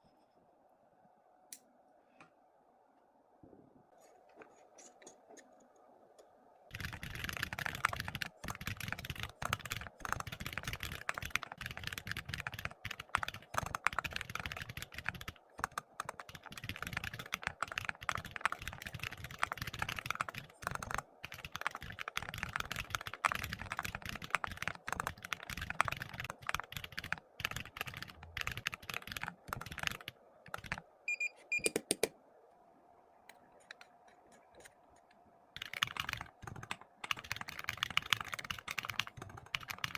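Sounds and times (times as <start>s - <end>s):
typing on a keyboard: 6.7s - 30.9s, 35.6s - 39.9s.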